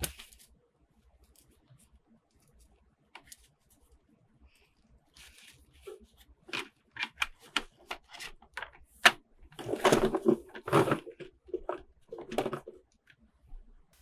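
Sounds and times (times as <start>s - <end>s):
packaging rustling: 9.6s - 12.8s.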